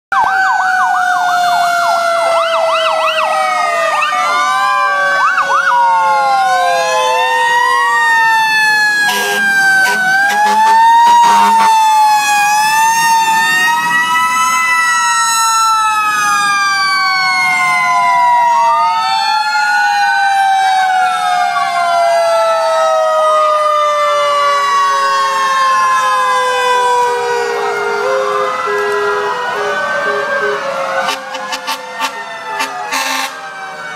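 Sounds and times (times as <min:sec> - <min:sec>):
fire truck sirens: 0:00.1 - 0:33.9
short sharp horn blasts: 0:09.1 - 0:11.6.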